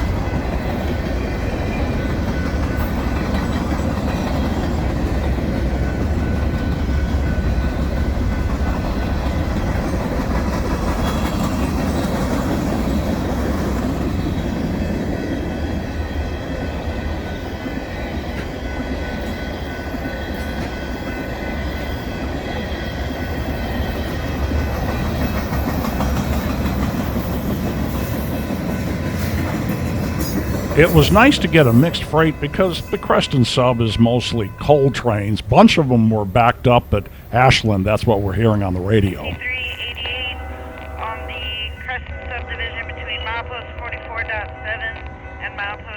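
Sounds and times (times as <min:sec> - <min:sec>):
train wheels clacking over rails: 0:00.0 - 0:39.4.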